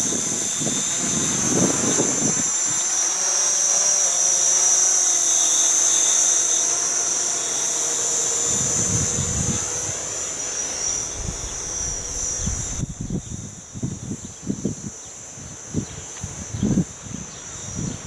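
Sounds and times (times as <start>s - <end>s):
wind gusts on microphone: 0.0s - 2.6s, 8.4s - 18.0s
drone motors whining: 0.0s - 18.0s.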